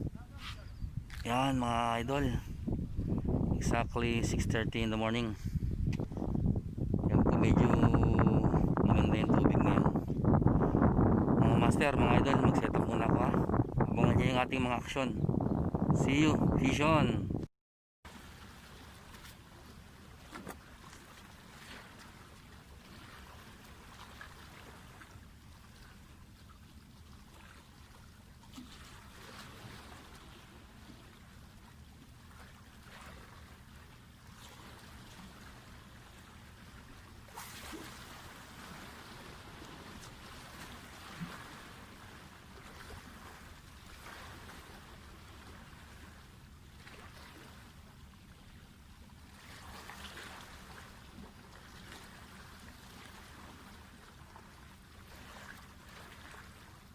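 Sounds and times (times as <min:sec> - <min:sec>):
water lapping against rocks: 0:18.1 - 0:48.6, 0:49.2 - 0:56.9.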